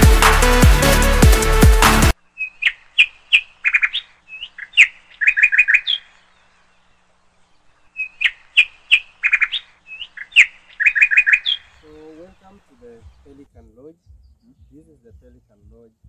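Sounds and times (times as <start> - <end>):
music: 0.0 - 2.2, 12.8 - 16.0
songbird singing: 2.1 - 16.0.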